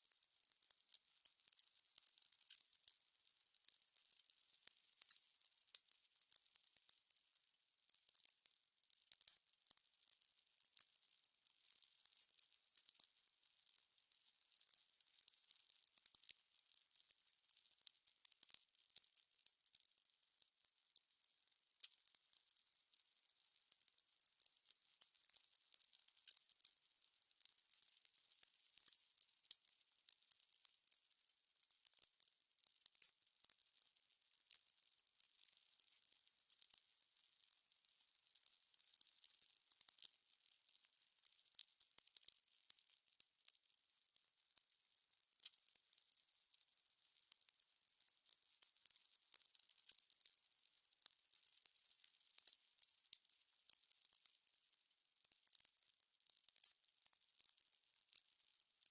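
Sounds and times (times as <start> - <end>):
fire crackling and popping: 0.0 - 58.9
fire crackling: 26.0 - 31.2, 31.9 - 32.1, 34.6 - 40.0.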